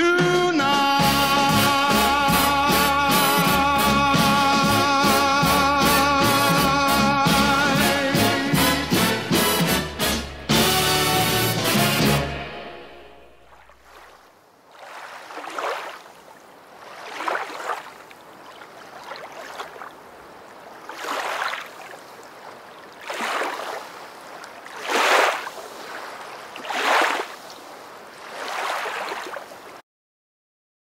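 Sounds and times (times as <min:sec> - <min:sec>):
small waves breaking on beach: 0:13.4 - 0:29.8.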